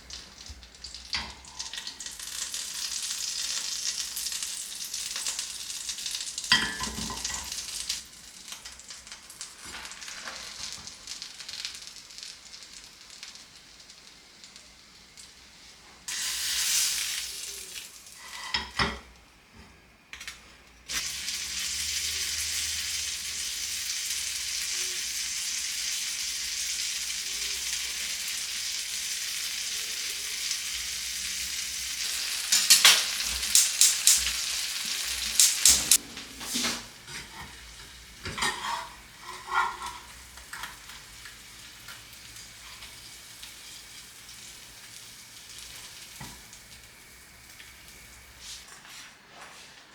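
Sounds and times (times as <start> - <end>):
food sizzling in a pan: 0.0 - 49.6.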